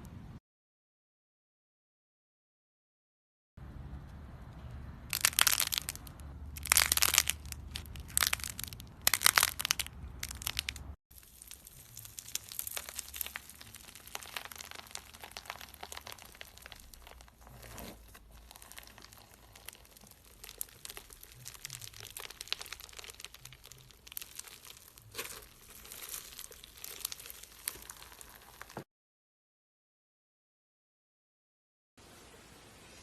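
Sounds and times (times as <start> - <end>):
crunchy material crackling: 5.1 - 28.9.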